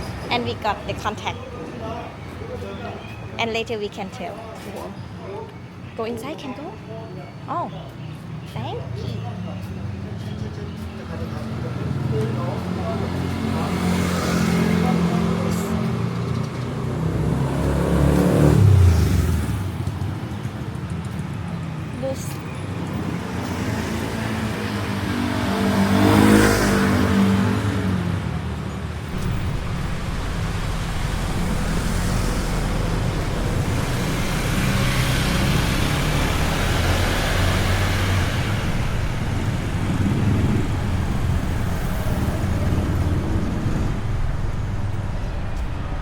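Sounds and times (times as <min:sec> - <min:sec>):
vehicle passing by: 0:11.2 - 0:20.0, 0:23.1 - 0:46.0
engines running steadily: 0:22.8 - 0:46.0.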